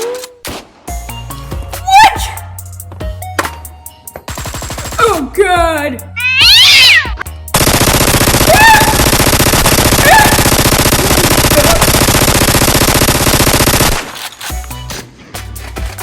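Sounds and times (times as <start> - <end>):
rapid machine-gun fire: 4.3 - 5.1, 7.5 - 14.2.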